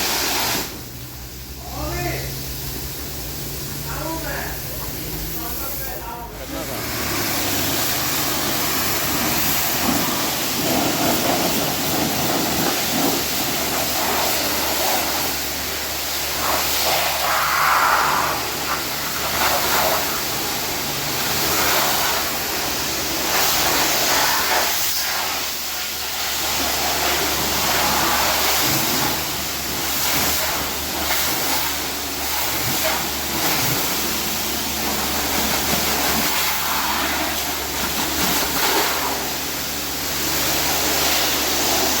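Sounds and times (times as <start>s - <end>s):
pressure washer spraying water: 0.0s - 42.0s.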